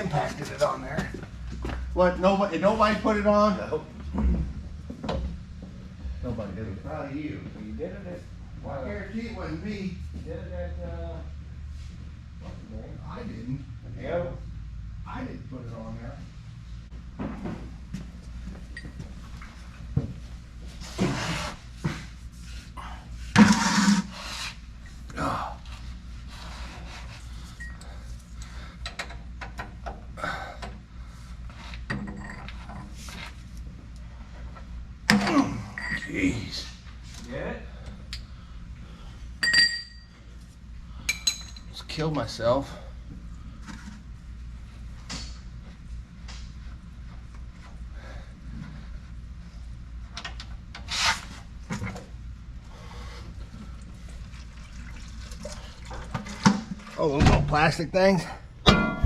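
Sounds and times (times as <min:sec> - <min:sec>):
steady low hum: 0:00.0 - 0:59.0
rasping scrape: 0:23.4 - 0:24.6
hand tools clinking and knocking: 0:39.4 - 0:40.1, 0:41.1 - 0:41.7.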